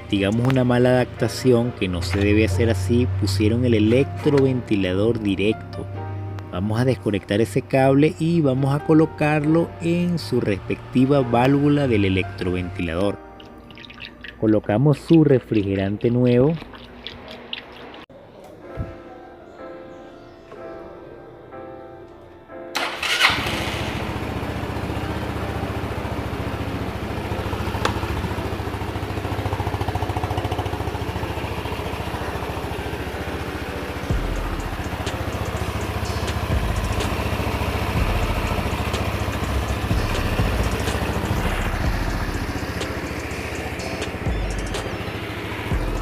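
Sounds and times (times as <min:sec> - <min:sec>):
scooter engine starting and running: 0:00.0 - 0:05.5, 0:22.8 - 0:46.0.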